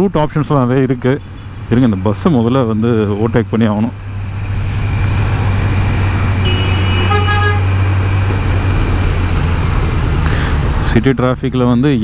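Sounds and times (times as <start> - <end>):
road and wind noise: 0.0 - 12.0
vehicle horn honking: 6.4 - 7.8.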